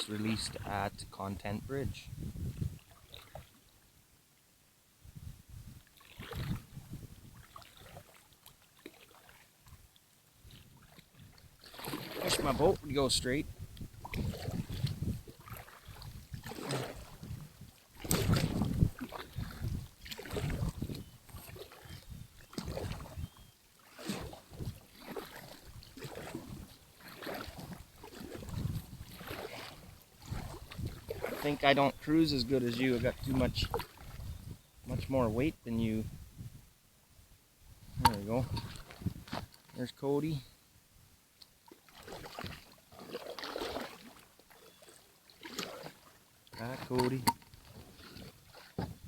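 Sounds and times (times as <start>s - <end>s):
paddle strokes splashing water: 0.0s - 1.4s, 2.5s - 3.8s, 5.8s - 35.1s, 37.9s - 40.5s, 41.4s - 49.0s
paddle knocks: 48.8s - 49.0s.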